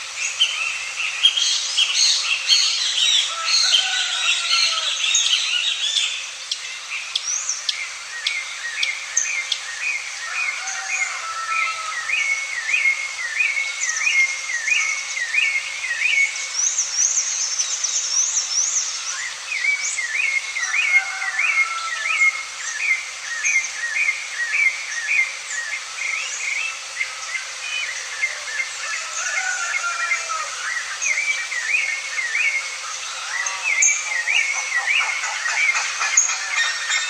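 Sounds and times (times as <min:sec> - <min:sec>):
bird chirping: 0:30.7 - 0:37.0.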